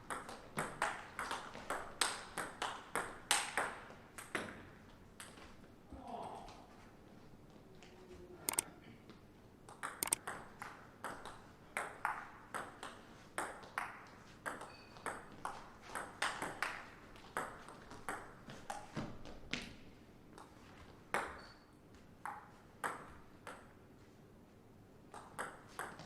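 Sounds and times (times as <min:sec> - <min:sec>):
table tennis ball ticking: 0:09.9 - 0:10.4.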